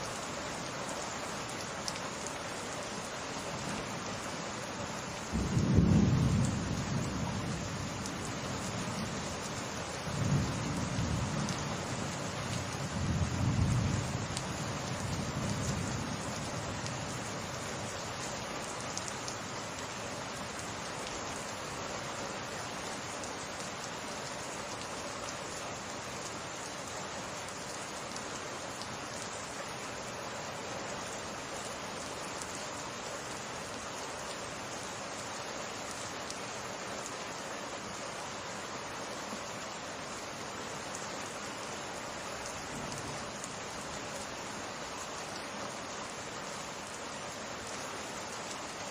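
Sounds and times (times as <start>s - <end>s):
steady rain falling: 0.0s - 48.9s
thunder rumble: 5.3s - 8.0s.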